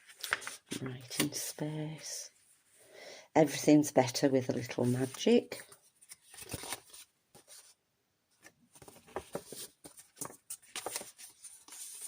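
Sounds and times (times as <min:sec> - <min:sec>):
paper rustling: 0:00.0 - 0:01.4, 0:04.6 - 0:07.8, 0:08.4 - 0:12.0.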